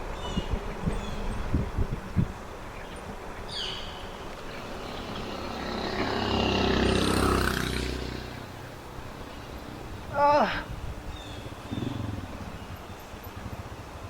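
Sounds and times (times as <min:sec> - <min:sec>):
motor vehicle passing: 0:03.2 - 0:14.0.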